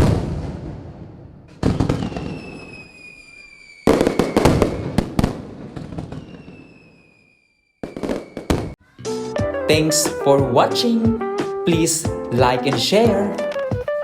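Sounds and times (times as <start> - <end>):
firework bangs: 0.0 - 8.8
falling firework whistle: 1.5 - 8.8.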